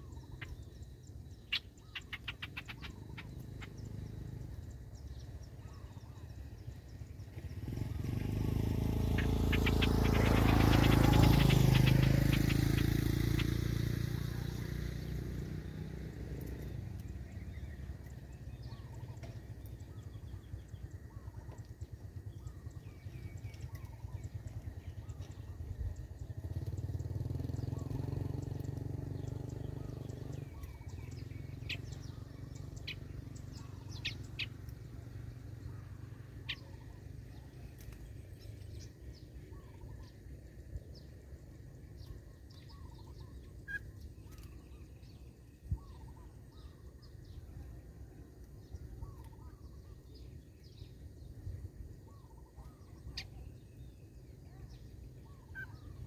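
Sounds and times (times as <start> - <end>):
small birds chirping: 0.0 - 56.0
sharp high ticks: 1.5 - 3.8, 9.0 - 13.7.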